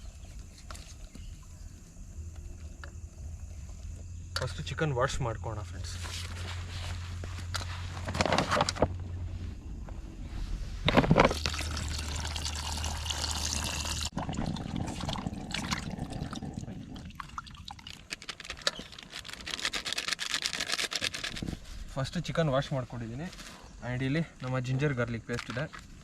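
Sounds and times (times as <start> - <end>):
water pouring and splashing: 11.1 - 18.6.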